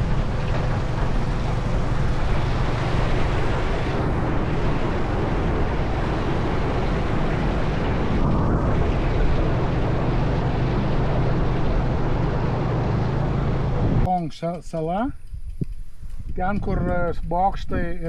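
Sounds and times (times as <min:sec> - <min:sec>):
motorbike engine drone: 0:00.0 - 0:14.1
wind rush over microphone: 0:00.0 - 0:14.1, 0:15.0 - 0:18.0.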